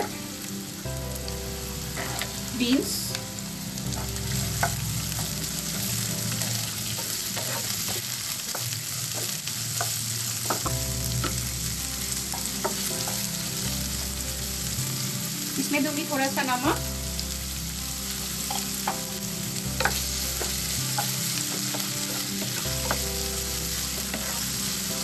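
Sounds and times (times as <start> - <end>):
vegetables sizzling in oil: 0.0 - 25.0
wooden spatula scraping a pan: 1.9 - 2.8, 3.9 - 10.7, 19.8 - 24.9.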